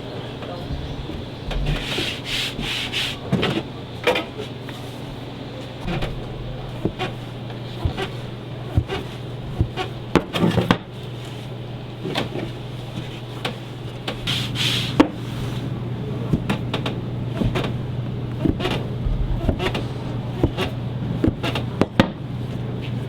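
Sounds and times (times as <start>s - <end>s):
low hum: 5.2s - 10.1s, 17.2s - 21.2s.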